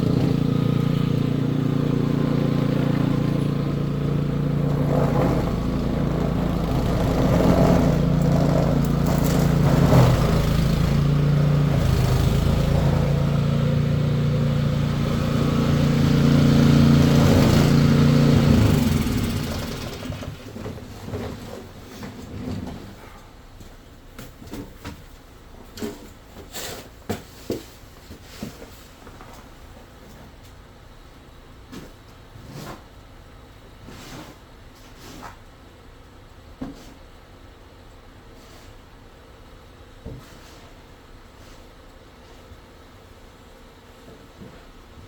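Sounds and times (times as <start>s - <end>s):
engine running: 0.0s - 21.6s.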